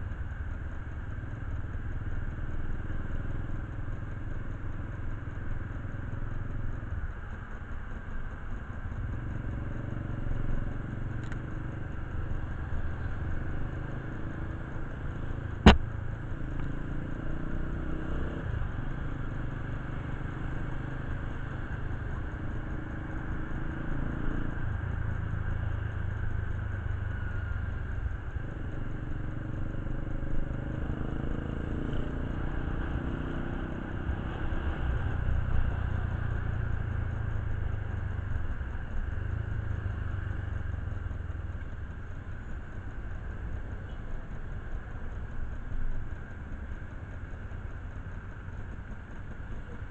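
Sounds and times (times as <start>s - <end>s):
motorcycle engine running: 0.0s - 49.9s
sharp click: 15.6s - 15.9s.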